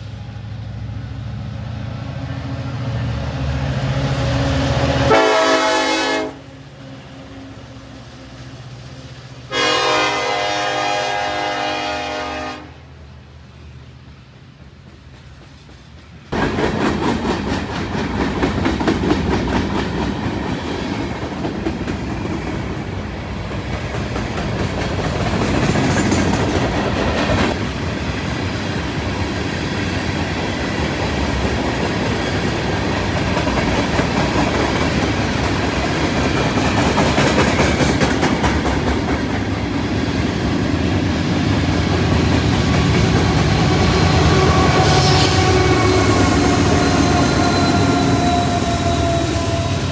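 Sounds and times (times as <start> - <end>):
train wheels clacking on rails: 14.1 - 49.9.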